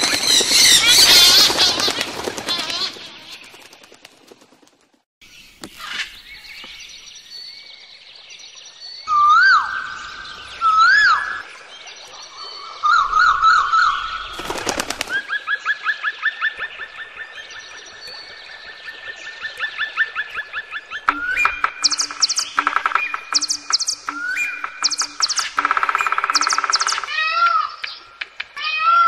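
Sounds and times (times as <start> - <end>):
rapid rising bird chirps: 20.0 - 28.2
bird trill: 20.3 - 28.2
bird singing whistled notes: 21.1 - 27.2.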